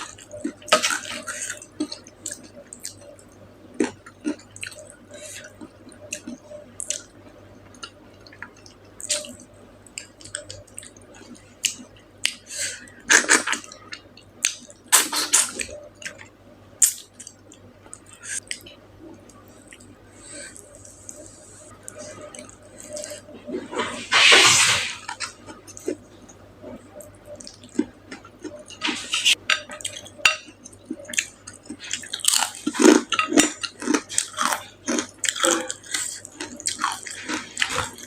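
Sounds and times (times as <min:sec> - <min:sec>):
wet chewing and mouth clicks: 0:29.7 - 0:38.0.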